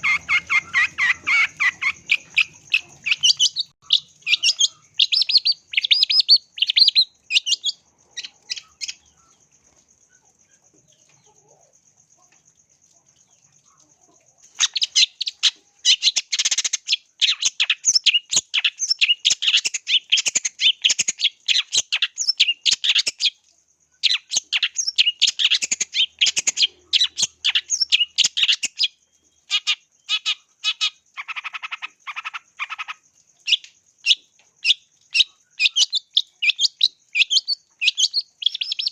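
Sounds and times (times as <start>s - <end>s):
shrike chattering song: 0.0s - 9.2s.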